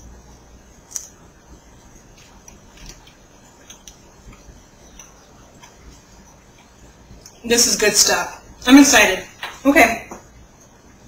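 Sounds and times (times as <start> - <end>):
person chewing: 0.8 - 7.4.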